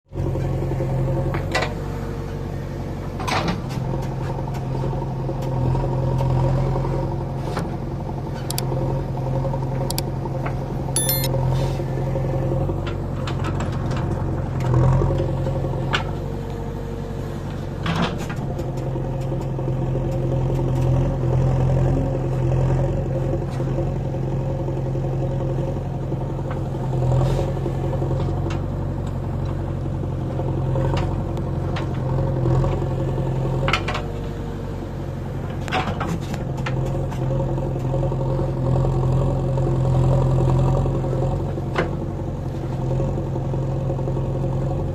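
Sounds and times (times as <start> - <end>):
backhoe diesel engine: 0.2 - 10.8, 11.6 - 44.9.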